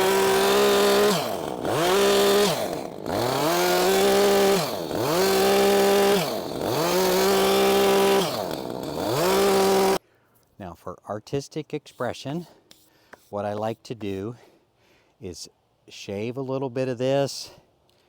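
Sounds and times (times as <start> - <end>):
chainsaw cutting log: 0.0 - 10.0.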